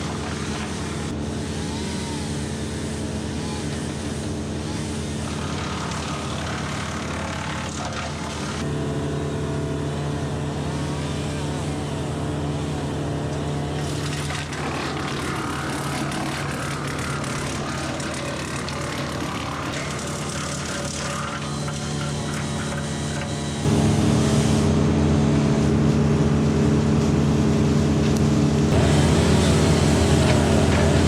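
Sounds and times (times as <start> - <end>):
wood chipper: 0.0 - 31.0
tractor diesel engine running: 8.6 - 31.0.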